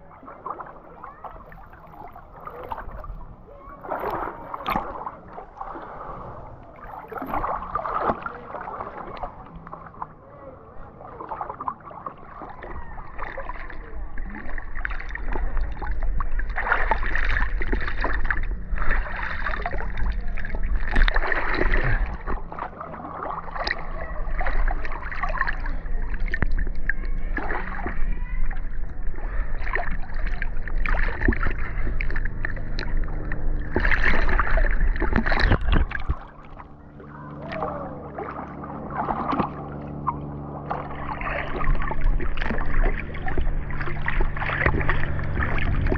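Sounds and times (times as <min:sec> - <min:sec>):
heavy low rumble: 0:00.0 - 0:45.9
river water rushing and splashing: 0:29.1 - 0:45.9.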